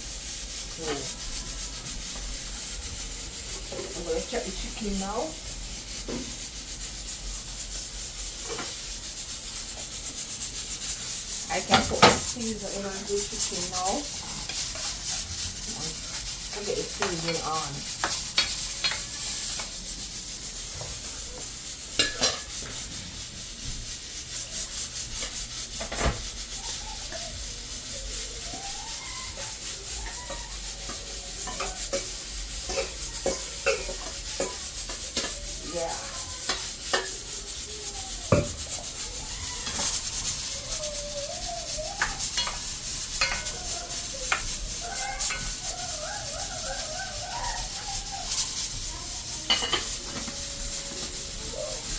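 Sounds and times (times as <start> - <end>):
steady hiss: 0.0 - 34.1.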